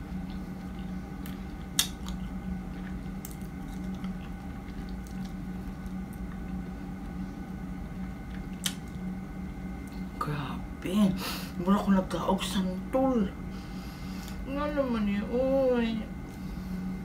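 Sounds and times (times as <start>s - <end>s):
steady low hum: 0.0s - 17.0s
chewing mouth sounds: 0.1s - 7.2s.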